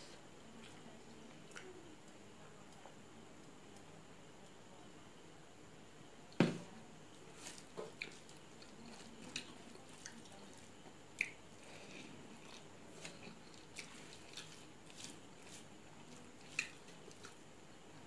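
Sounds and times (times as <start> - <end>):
chewing with wet mouth clicks: 1.5 - 1.7, 7.6 - 17.4.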